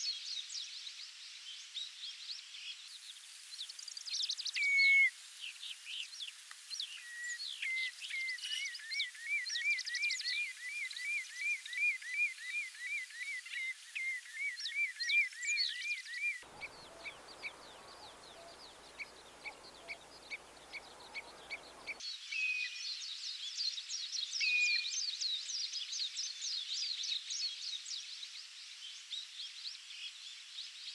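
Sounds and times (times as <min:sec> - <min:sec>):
chorus of high bird chirps: 0:14.0 - 0:22.0
whistled bird note: 0:16.2 - 0:22.0
bird call notes: 0:16.4 - 0:22.0.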